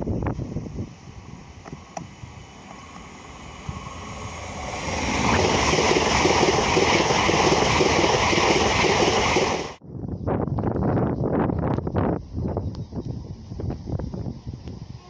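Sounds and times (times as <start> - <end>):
high-speed train passing: 0.0 - 9.8.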